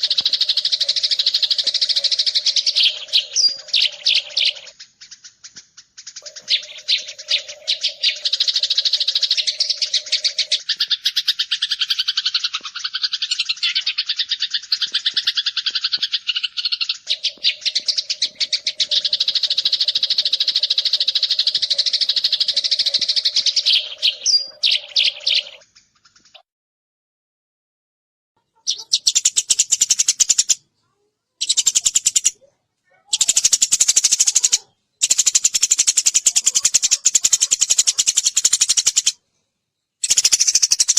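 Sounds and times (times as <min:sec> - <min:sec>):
sparrows chirping: 0:00.0 - 0:26.4, 0:28.4 - 0:40.9.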